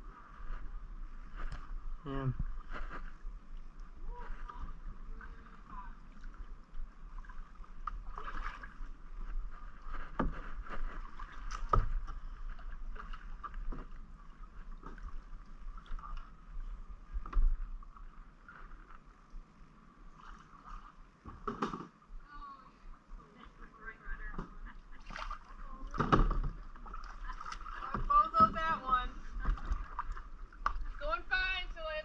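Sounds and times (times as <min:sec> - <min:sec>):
paddle splashing in water: 0:02.4 - 0:19.2, 0:24.2 - 0:32.0.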